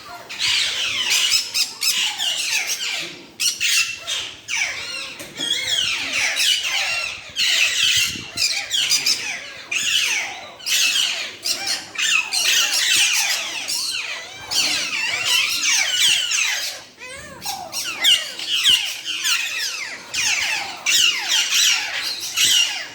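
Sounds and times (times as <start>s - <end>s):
parrots chirping and chattering: 0.0s - 22.9s.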